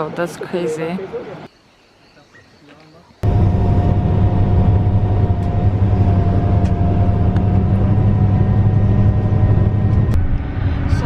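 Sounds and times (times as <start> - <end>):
vehicle engine drone: 3.2 - 11.0.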